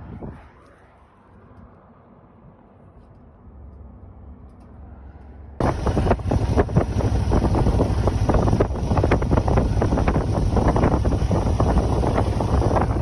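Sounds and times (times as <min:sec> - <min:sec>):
motorcycle engine rumbling: 0:05.6 - 0:13.0
wind buffeting microphone: 0:05.6 - 0:13.0.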